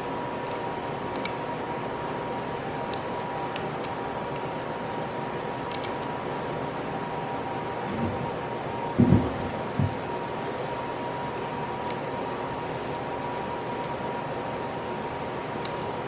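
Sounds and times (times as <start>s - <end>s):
thin steady hum: 0.0s - 16.0s
light clicks of small parts: 5.7s - 6.1s.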